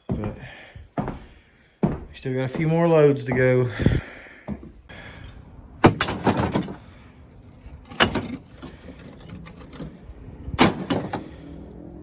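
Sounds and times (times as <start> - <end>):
brick debris knocking and clattering: 5.8 - 6.8, 7.6 - 10.0.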